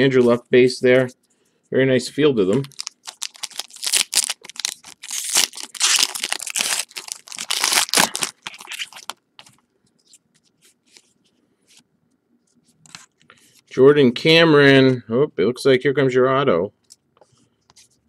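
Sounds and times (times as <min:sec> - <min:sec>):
card pack wrapper crinkling and tearing: 0:02.5 - 0:09.2.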